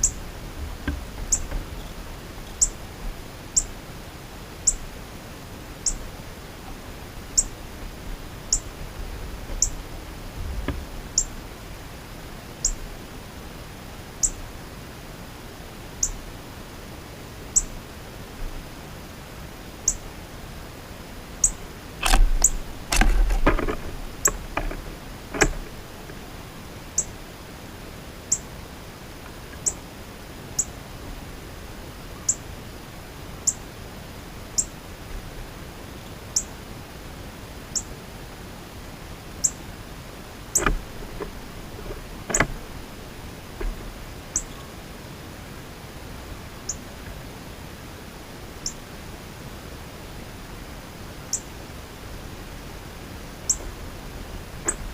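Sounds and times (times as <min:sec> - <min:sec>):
knocking and clattering: 0:22.0 - 0:25.7.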